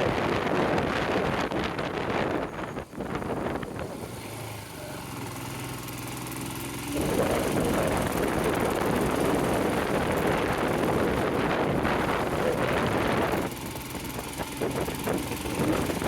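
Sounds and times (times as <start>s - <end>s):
wind noise on microphone: 0.0s - 4.6s, 6.6s - 16.0s
motorcycle engine running: 0.0s - 16.0s.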